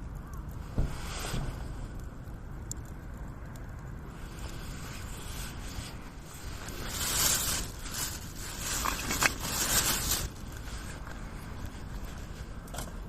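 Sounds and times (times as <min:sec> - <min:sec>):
low steady rumble: 0:00.0 - 0:13.0
rustling and scraping: 0:00.6 - 0:02.0, 0:04.2 - 0:13.0.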